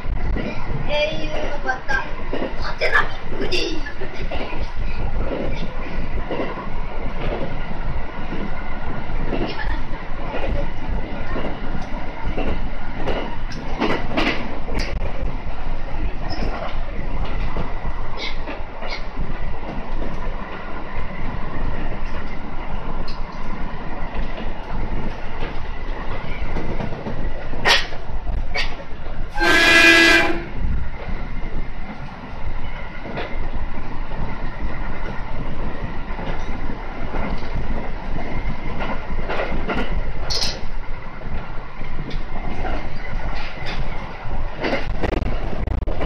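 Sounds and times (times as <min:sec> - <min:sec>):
train wheels rumbling on rails: 0:00.0 - 0:46.0
train horn blast: 0:29.4 - 0:30.6.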